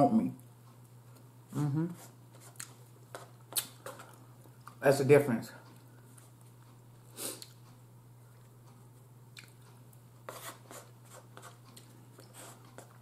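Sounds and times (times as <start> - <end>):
steady low hum: 0.0 - 13.0
person chewing: 2.4 - 4.8, 5.7 - 8.7, 9.3 - 10.0.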